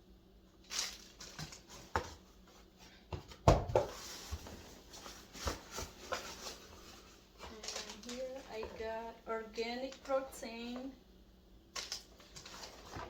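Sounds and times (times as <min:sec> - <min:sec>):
packaging rustling: 0:00.6 - 0:02.2, 0:03.9 - 0:08.7, 0:11.8 - 0:13.0
items knocking and tapping: 0:03.1 - 0:04.6.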